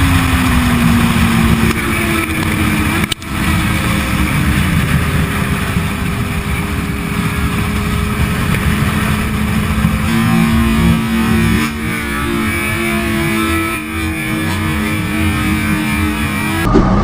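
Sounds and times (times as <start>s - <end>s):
loud rushing noise: 0.0s - 17.0s
motorcycle engine at high revs: 0.0s - 17.0s.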